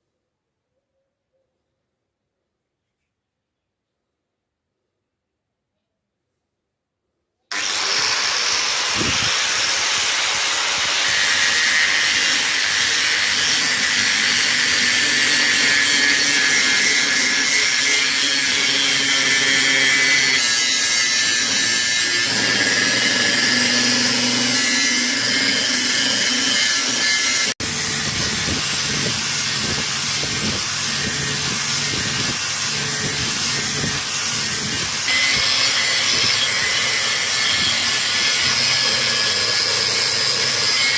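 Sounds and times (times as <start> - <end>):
power tool scraping rust off metal: 7.5 - 40.9.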